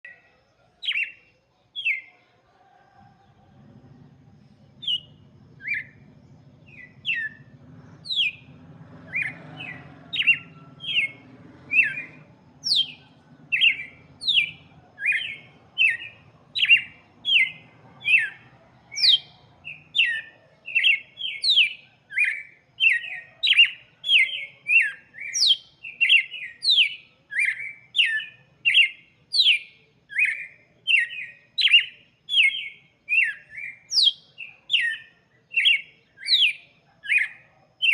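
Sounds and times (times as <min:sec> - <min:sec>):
bird singing sharp notes: 0:04.5 - 0:37.9.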